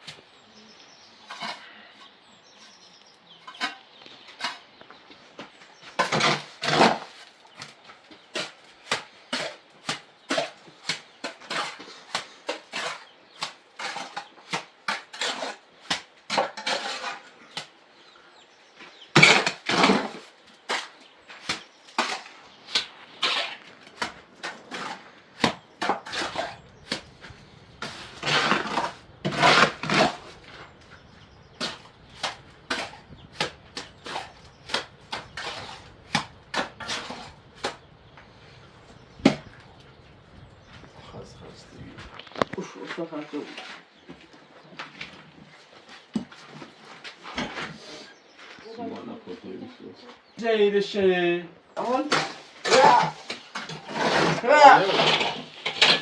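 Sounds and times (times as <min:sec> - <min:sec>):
scraping clattering sounds: 0:01.2 - 0:08.6, 0:16.3 - 0:17.6, 0:18.9 - 0:48.1, 0:51.8 - 0:56.0
sharp knocks of hard objects: 0:24.0 - 0:30.6, 0:31.6 - 0:37.8, 0:39.2 - 0:39.6.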